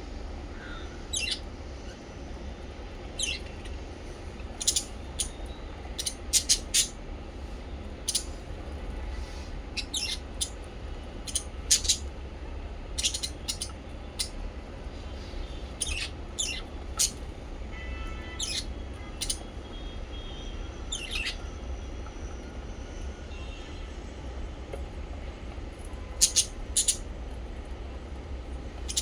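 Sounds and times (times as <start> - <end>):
steady low hum: 0.0 - 29.0
small parrots chirping: 1.1 - 2.0, 3.2 - 3.8, 4.4 - 7.0, 8.0 - 8.4, 9.8 - 10.6, 11.2 - 12.1, 13.0 - 14.4, 15.4 - 17.3, 18.2 - 19.8, 20.9 - 21.4, 26.1 - 27.1, 28.8 - 29.0.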